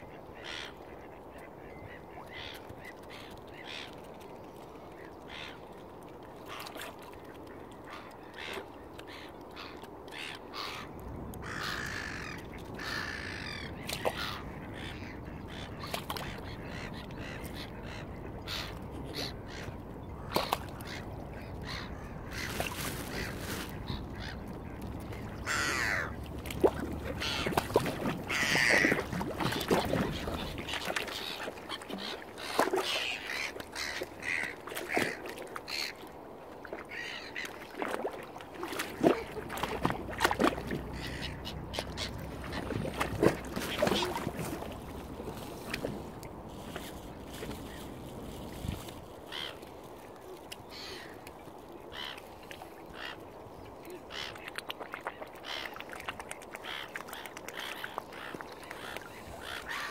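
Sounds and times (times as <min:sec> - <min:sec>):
birds calling: 0:07.9 - 0:36.0, 0:39.0 - 0:45.2.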